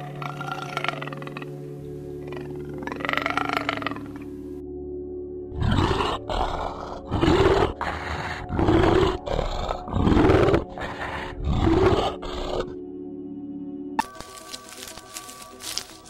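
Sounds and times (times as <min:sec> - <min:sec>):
bear growling and roaring: 0:00.0 - 0:01.6, 0:02.2 - 0:04.3, 0:05.5 - 0:12.8
background music drone: 0:00.0 - 0:16.0.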